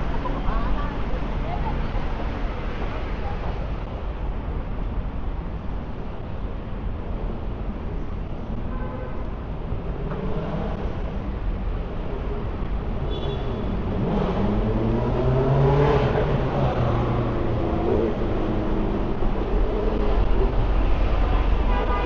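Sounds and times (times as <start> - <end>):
street traffic rumble: 0.0 - 22.0
vehicle accelerating: 13.6 - 21.2.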